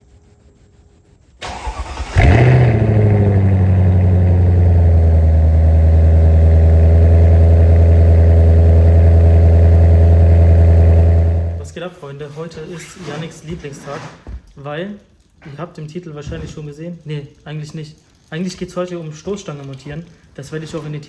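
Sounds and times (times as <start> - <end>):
engine starter cranking: 1.4 - 4.9
engine revving and idling loudly: 1.4 - 11.8.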